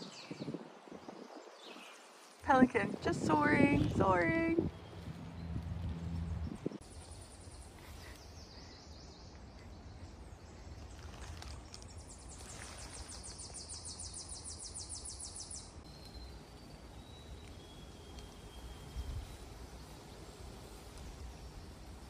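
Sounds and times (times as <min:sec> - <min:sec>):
low rumble: 0:02.6 - 0:06.8.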